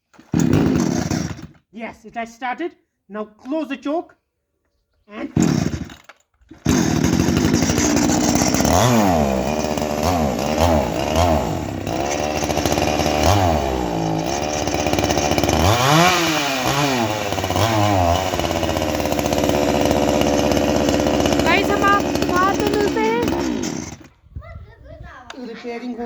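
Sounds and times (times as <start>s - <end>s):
chainsaw engine revving: 0.2s - 1.6s, 5.3s - 24.1s.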